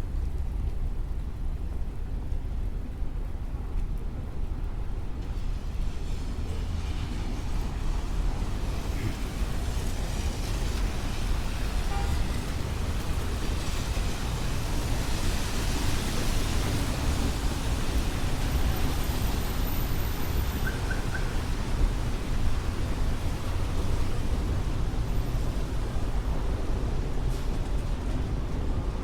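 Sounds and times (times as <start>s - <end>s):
traffic rumble: 0.0s - 29.0s
tyre hiss on wet road: 5.4s - 25.1s.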